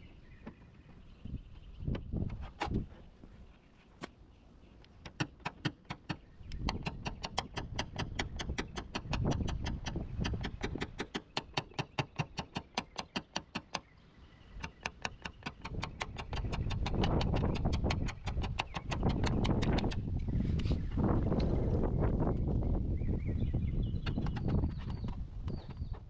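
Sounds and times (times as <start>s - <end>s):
rapid light tapping: 14.6s - 20.0s.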